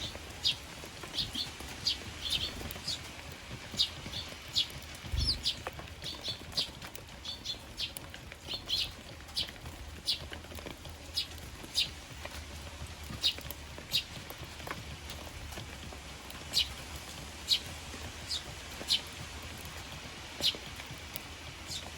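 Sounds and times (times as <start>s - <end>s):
sparrows chirping: 0.0s - 21.9s
low thump: 5.1s - 5.5s.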